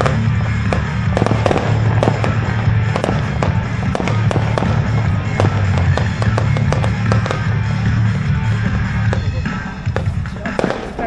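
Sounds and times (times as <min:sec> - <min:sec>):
fireworks popping and banging: 0:00.0 - 0:11.0
loud music with bass: 0:00.0 - 0:11.0.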